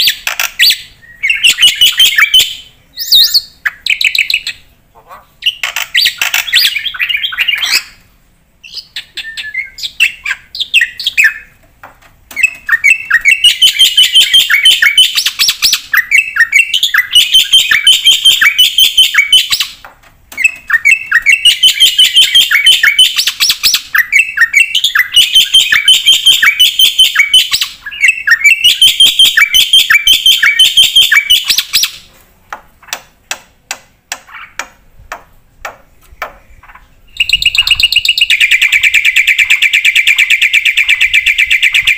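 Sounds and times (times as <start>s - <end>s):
bird chirps: 0.0s - 11.6s, 12.3s - 32.1s, 34.2s - 34.8s, 36.3s - 41.9s
starling chattering song: 36.4s - 41.9s.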